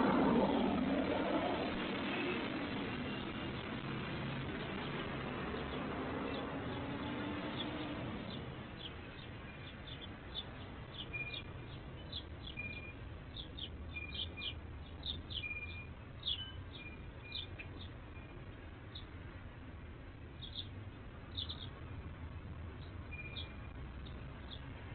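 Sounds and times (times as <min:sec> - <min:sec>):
low background rumble: 0:00.0 - 0:06.8
songbirds chirping: 0:04.6 - 0:24.9.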